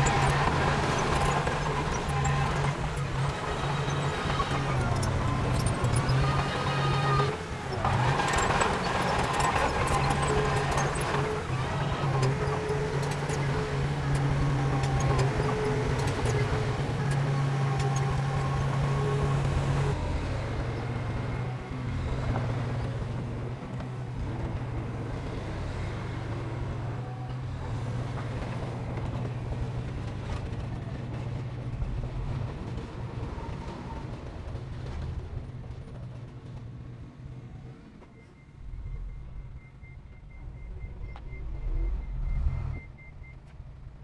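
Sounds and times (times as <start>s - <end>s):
heavy diesel engine droning: 0.0s - 35.2s.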